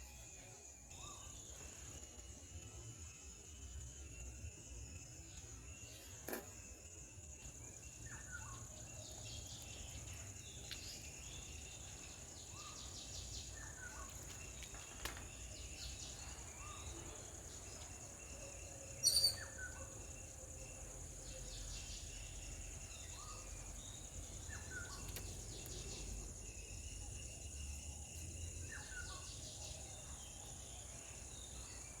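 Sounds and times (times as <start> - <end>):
falling bird chirps: 19.0 - 19.7.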